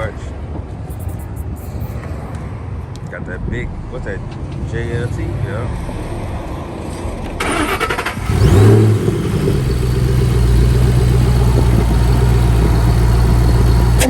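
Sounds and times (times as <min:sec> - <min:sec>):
car engine revving and idling: 0:05.8 - 0:14.0.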